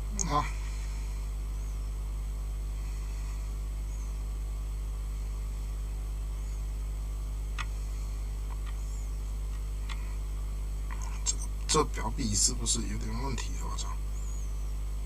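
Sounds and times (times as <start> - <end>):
electrical mains hum: 0.0 - 15.0
faint clicks: 8.4 - 8.9.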